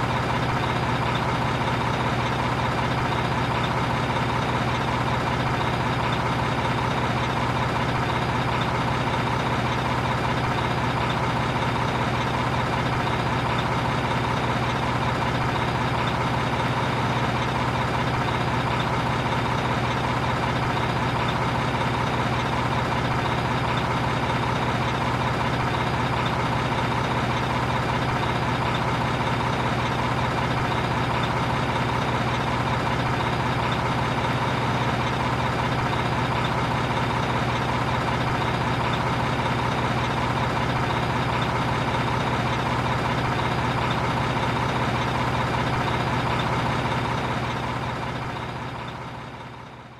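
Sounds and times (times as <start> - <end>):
heavy engine idling: 0.0 - 49.9.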